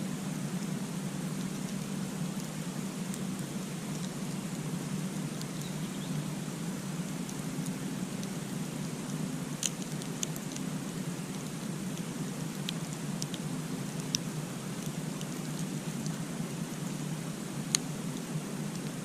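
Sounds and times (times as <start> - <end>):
fire crackles and pops: 0.0 - 19.0
campfire flames rushing: 6.3 - 19.0.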